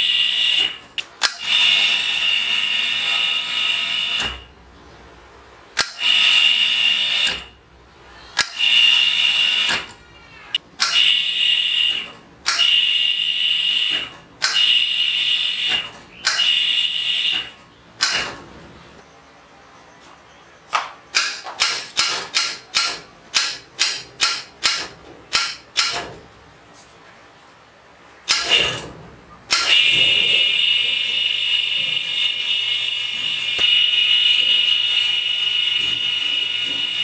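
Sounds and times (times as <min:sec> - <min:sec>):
electric hoist motor whining: 0:00.0 - 0:04.6, 0:05.8 - 0:07.6, 0:08.3 - 0:18.4, 0:29.5 - 0:37.0
sharp click of hoist: 0:00.6 - 0:01.6, 0:05.8 - 0:06.2, 0:07.2 - 0:07.5, 0:08.4 - 0:08.7, 0:09.6 - 0:11.2, 0:11.9 - 0:12.8, 0:13.8 - 0:14.9, 0:15.6 - 0:18.4, 0:21.1 - 0:26.2, 0:28.3 - 0:28.9, 0:29.5 - 0:30.0.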